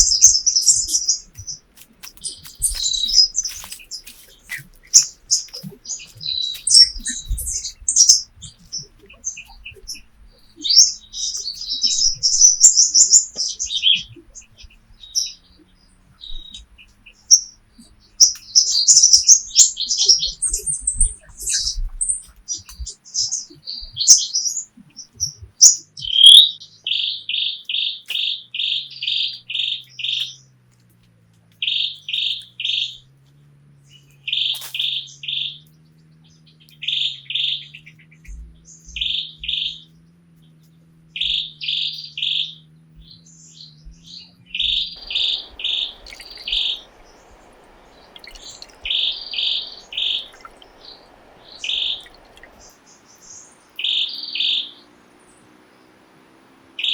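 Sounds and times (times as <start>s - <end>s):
bird chirping: 0.0s - 30.6s, 31.6s - 56.9s
faint hiss: 45.0s - 53.8s.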